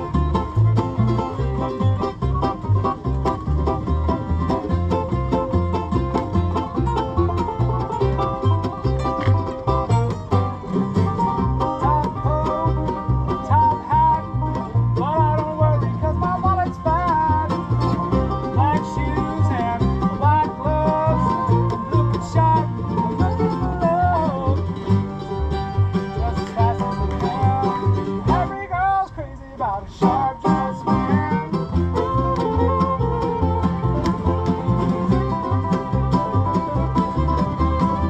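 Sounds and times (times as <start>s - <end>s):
pulsing bass line: 0.0s - 29.0s, 30.0s - 38.0s
plucked string melody: 0.0s - 29.1s, 29.8s - 38.0s.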